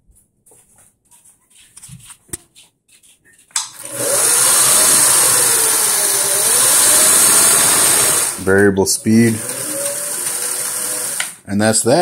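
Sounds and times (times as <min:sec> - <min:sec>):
sewing machine motor running: 0:03.8 - 0:11.4.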